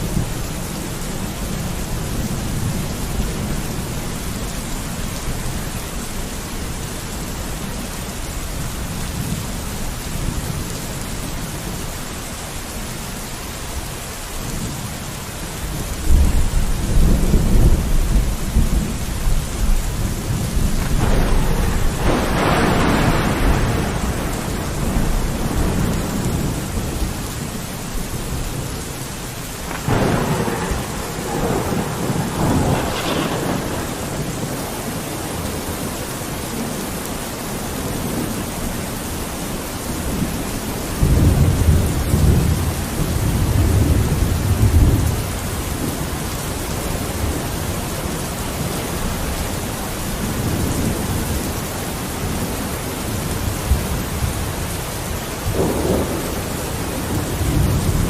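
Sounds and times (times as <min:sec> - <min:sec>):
steady rain: 0:00.0 - 0:58.0
rolling thunder: 0:15.8 - 0:36.8, 0:40.0 - 0:49.4, 0:53.2 - 0:58.0.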